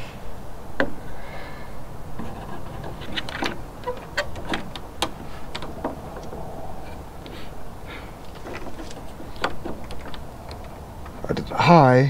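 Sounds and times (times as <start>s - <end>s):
metal gate latch clicking: 2.2s - 7.3s, 8.3s - 11.3s.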